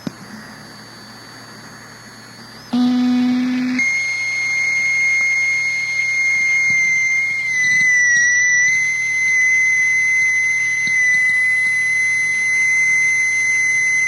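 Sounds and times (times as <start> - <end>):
loud low buzzing tone: 0.0 - 14.0
steady shrill high tone: 2.7 - 13.9.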